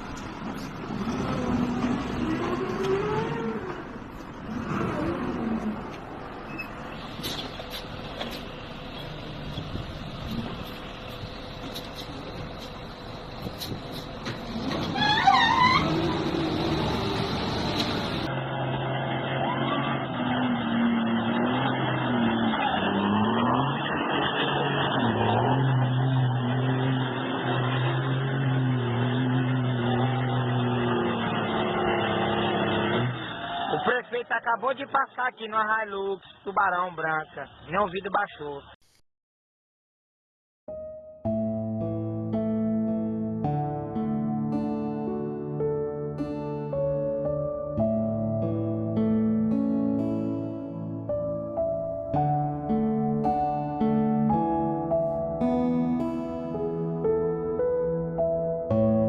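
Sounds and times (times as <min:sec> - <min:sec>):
motor vehicle running: 0:00.0 - 0:33.9
vehicle engine running: 0:05.6 - 0:15.0, 0:16.0 - 0:20.4.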